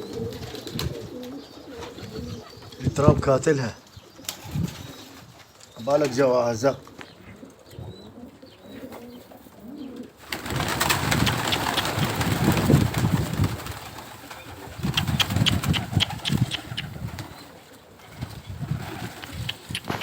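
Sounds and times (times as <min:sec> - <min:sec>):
pigeons cooing: 0:00.0 - 0:03.3, 0:06.6 - 0:20.0
wind buffeting microphone: 0:04.4 - 0:05.4, 0:10.8 - 0:20.0.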